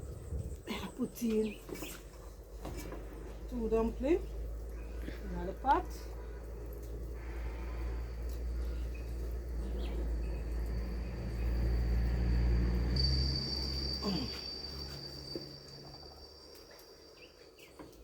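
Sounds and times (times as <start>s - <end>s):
low rumble: 0.0s - 0.7s, 2.3s - 17.4s
cricket trilling: 7.2s - 18.0s.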